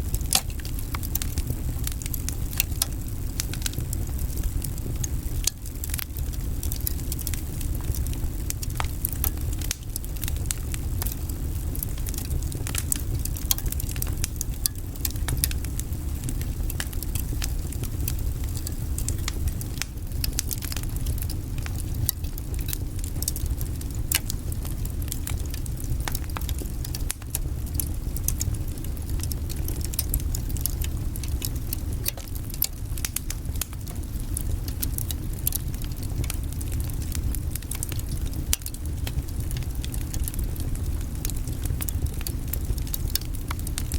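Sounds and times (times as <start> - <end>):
low rumble of flames: 0.0 - 43.9
wood crackling and popping: 0.0 - 43.9.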